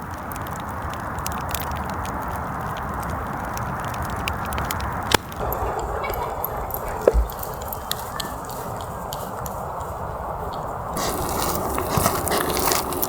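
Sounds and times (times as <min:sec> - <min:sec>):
loud snap of fire: 0:00.0 - 0:08.3
campfire crackling and popping: 0:00.0 - 0:13.0.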